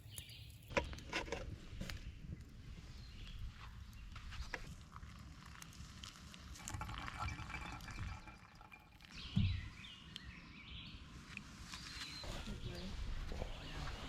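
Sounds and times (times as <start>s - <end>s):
campfire crackling and popping: 0.0s - 9.3s.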